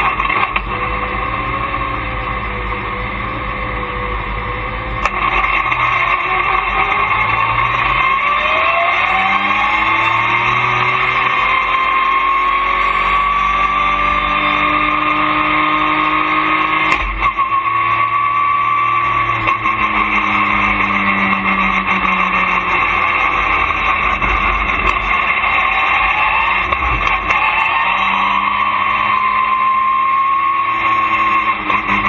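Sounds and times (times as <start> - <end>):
race car engine running hard: 0.0 - 32.0.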